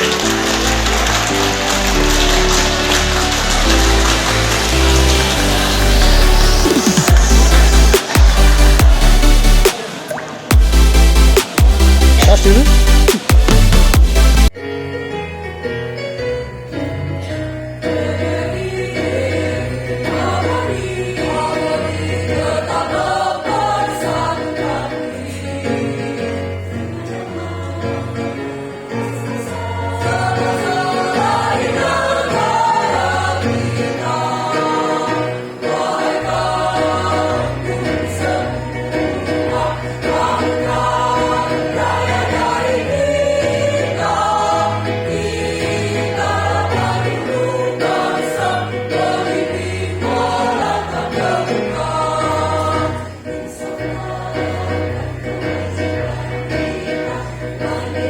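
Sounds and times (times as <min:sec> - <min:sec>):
instrumental accompaniment with bass: 0:00.0 - 0:09.7, 0:10.5 - 0:19.3
choir singing: 0:00.0 - 0:14.0, 0:17.7 - 0:58.0.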